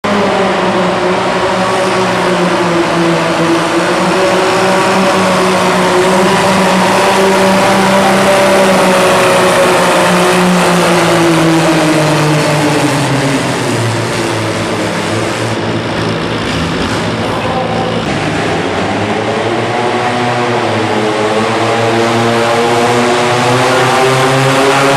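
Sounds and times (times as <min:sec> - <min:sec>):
tractor engine labouring: 0:00.0 - 0:21.9.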